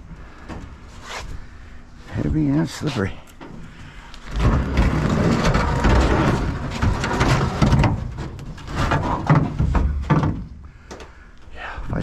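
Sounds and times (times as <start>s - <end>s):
scrap metal clattering and scraping: 2.8s - 10.5s.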